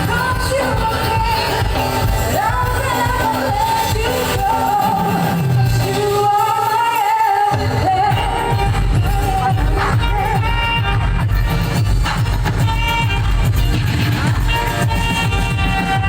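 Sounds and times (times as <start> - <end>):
person singing with vibrato: 0.0 - 11.8
musical accompaniment: 0.0 - 16.0.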